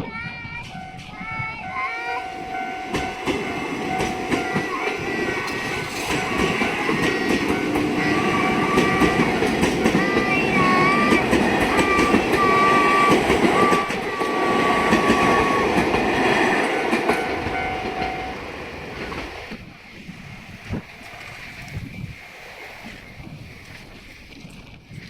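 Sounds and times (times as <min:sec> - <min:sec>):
wavering high squeal: 0:00.0 - 0:18.6
train wheels clacking on rails: 0:00.6 - 0:21.8.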